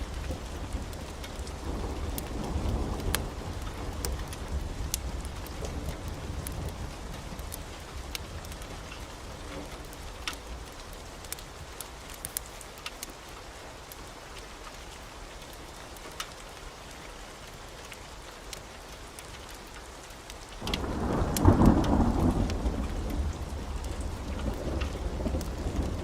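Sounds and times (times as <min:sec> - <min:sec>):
thunder rumbling: 0:00.0 - 0:11.3, 0:20.6 - 0:26.0
heavy rain: 0:00.0 - 0:26.0.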